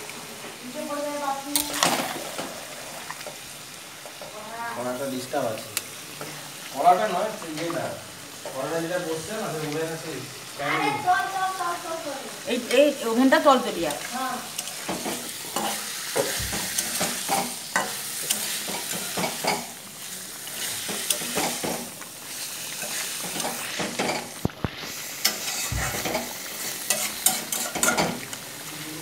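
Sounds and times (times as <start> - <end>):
curry sizzling in oil: 0.0 - 29.0
metal spatula scraping pan: 14.6 - 19.7, 25.2 - 28.2.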